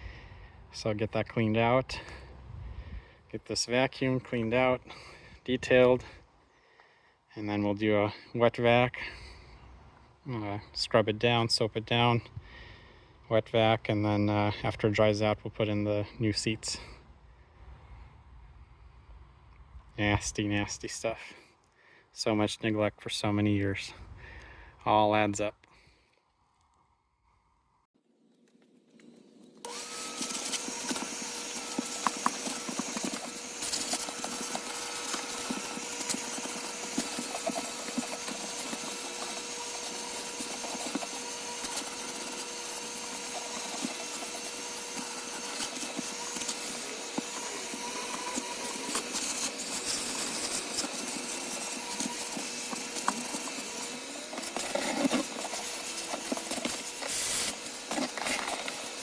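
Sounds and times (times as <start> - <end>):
vacuum cleaner motor whine: 29.4 - 59.0.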